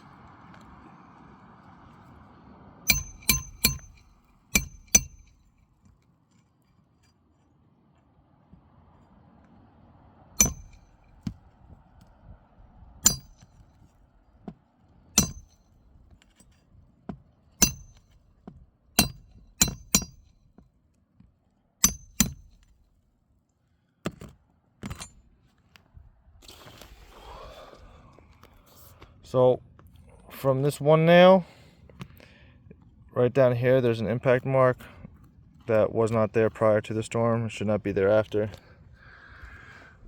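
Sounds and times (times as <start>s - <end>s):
slide-hammer metal clinks: 2.9s - 5.4s, 10.4s - 10.8s, 19.0s - 20.2s.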